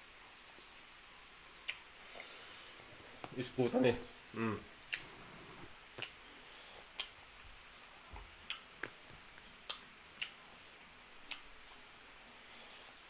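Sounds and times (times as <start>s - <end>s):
chewing clicks and smacks: 1.6s - 1.8s, 4.9s - 5.1s, 6.0s - 6.2s, 6.9s - 7.2s, 8.4s - 10.4s, 11.2s - 11.5s.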